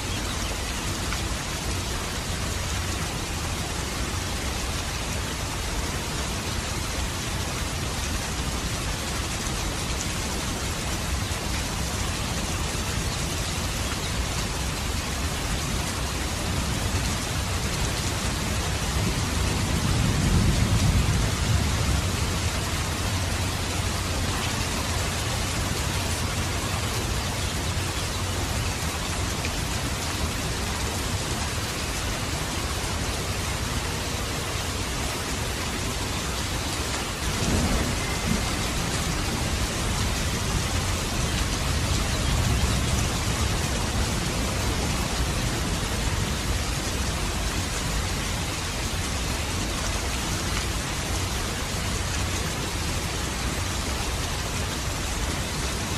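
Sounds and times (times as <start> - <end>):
steady rainfall: 0.0 - 55.9
thunder rumbling: 19.0 - 25.0, 37.2 - 46.6.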